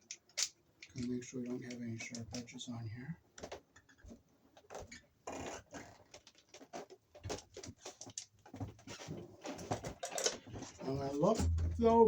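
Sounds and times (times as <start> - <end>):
tools clicking and knocking: 0.0 - 2.5.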